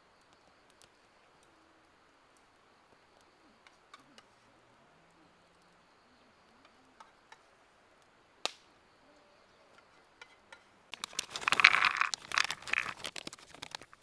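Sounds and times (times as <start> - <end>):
packaging crinkling: 11.0 - 14.0.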